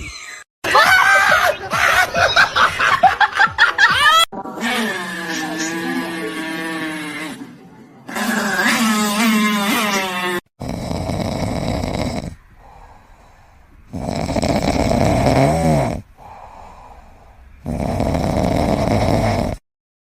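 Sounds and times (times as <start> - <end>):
pet snoring: 8.1 - 13.3, 13.9 - 19.6.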